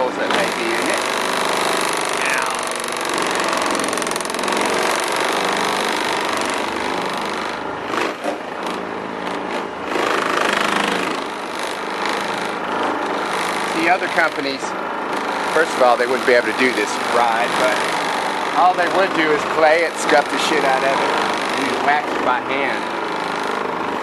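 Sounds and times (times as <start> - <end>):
orbital polisher motor whirring: 0.0 - 24.0.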